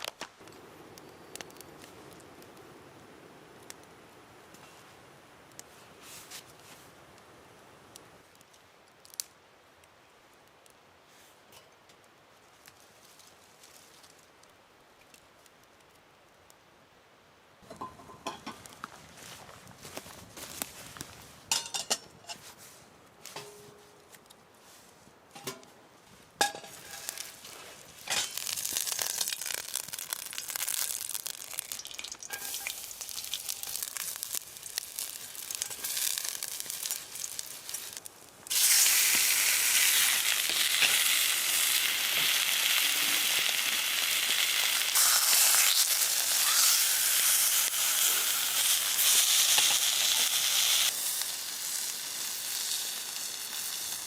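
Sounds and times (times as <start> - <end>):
food sizzling in a hot pan: 26.4 - 54.0.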